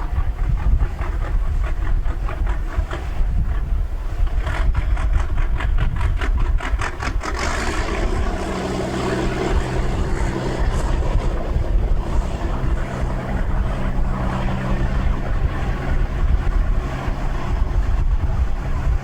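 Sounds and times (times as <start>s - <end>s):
engine humming: 0.0s - 19.0s
rapid even clatter: 0.1s - 8.4s.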